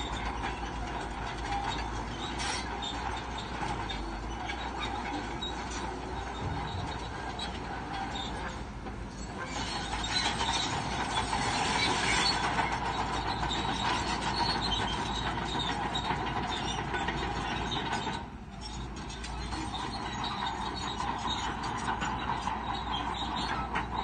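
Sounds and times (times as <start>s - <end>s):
bulldozer engine running: 0.0s - 24.0s
metallic clatter of steel tracks: 0.0s - 24.0s.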